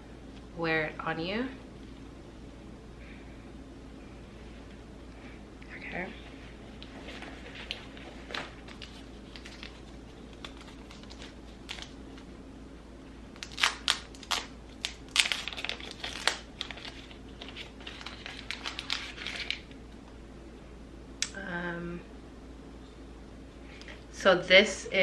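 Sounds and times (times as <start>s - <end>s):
packaging crinkling and rustling: 6.7s - 12.3s, 13.4s - 19.8s.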